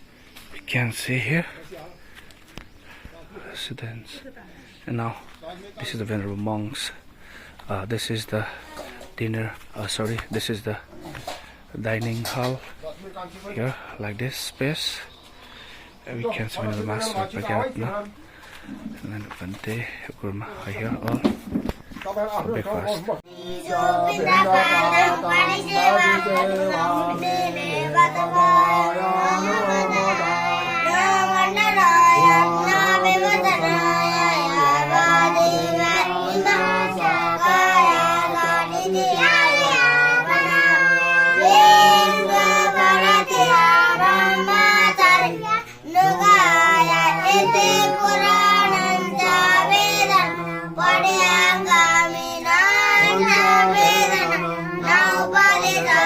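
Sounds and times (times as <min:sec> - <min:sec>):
child singing: 0:23.3 - 0:56.0.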